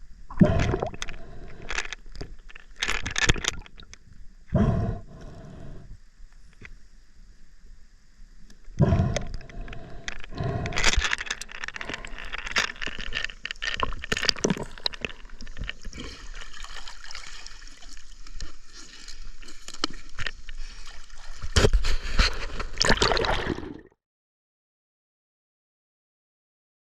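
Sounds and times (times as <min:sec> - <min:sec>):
water gurgling and splashing: 0:00.3 - 0:01.4, 0:11.8 - 0:24.0.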